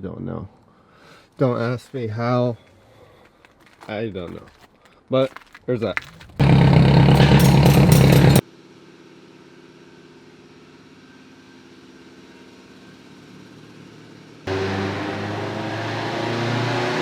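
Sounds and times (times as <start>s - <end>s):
car engine idling: 6.0s - 8.4s
engine revving under load: 6.2s - 8.4s, 14.4s - 17.0s.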